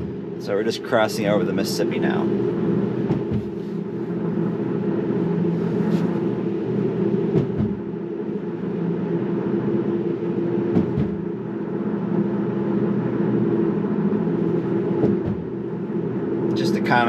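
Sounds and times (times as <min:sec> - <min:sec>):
low hum: 0:00.0 - 0:17.0
road and tyre noise: 0:01.9 - 0:08.6, 0:13.6 - 0:17.0.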